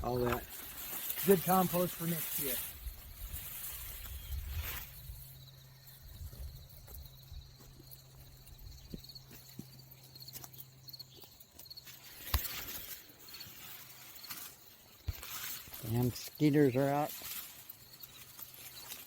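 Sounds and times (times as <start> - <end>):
hand digging in soil: 0.0 - 5.4.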